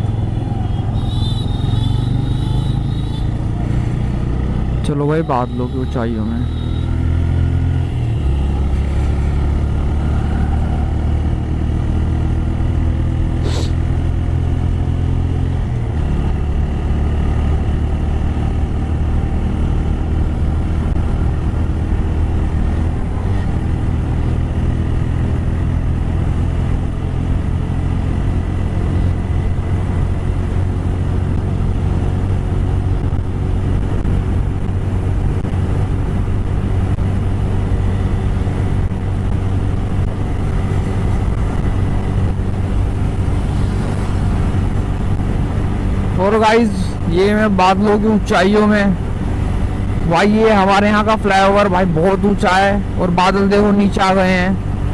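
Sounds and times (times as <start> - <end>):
wind noise: 28.9 - 47.0.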